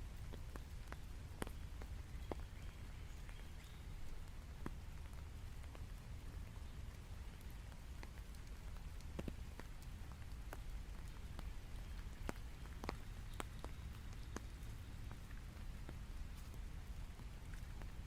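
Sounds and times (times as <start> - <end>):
steady rain: 0.0 - 18.0
drops ticking on a surface: 0.2 - 18.0.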